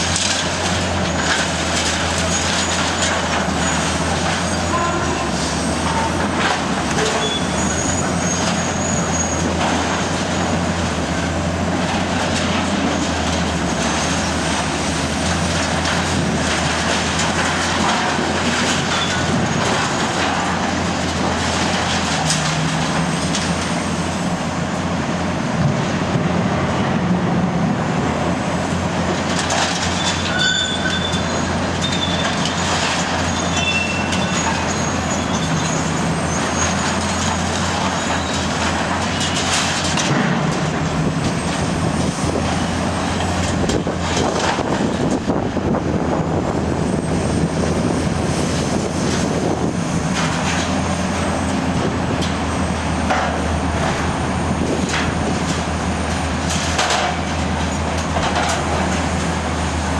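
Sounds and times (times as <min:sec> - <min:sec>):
excavator diesel engine: 0:00.0 - 0:59.9
metal squeals: 0:02.1 - 0:09.6, 0:18.8 - 0:19.6, 0:29.8 - 0:38.5
metal knocks and clanks: 0:56.5 - 0:59.0.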